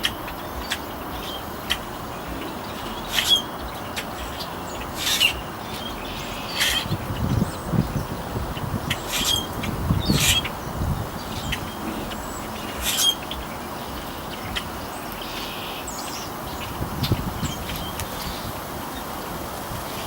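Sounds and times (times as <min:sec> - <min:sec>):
birds chirping: 0:00.0 - 0:20.0
steady outdoor hiss: 0:00.0 - 0:20.0.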